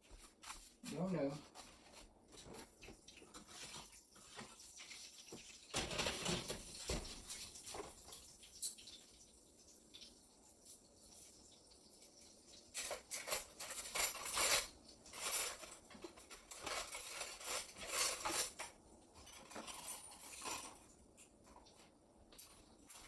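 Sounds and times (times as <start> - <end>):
dishes and silverware clinking: 12.7 - 23.0.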